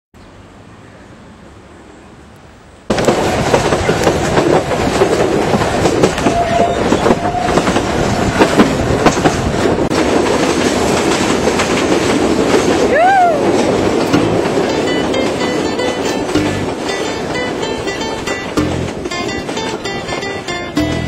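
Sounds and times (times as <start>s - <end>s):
train wheels rattling on rails: 2.9s - 21.0s
train wheel squeals: 6.2s - 8.4s.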